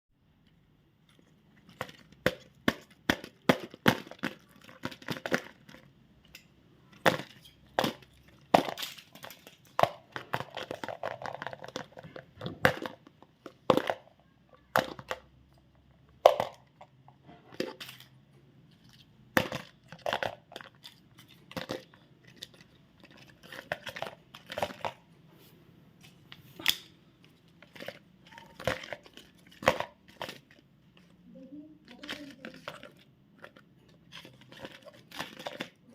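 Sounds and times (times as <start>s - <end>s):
candy wrappers crinkling and tearing: 6.9s - 12.2s, 17.6s - 25.0s, 26.6s - 35.9s.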